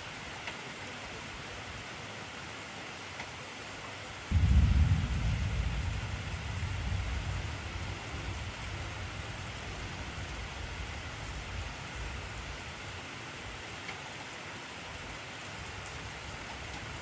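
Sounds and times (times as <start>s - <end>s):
heavy rain falling: 0.0s - 17.0s
low rumble of thunder: 4.3s - 13.0s.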